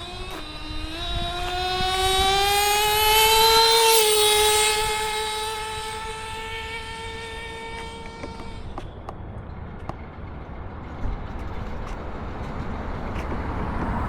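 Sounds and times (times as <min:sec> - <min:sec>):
rc truck nitro engine high-pitched: 0:00.0 - 0:08.9.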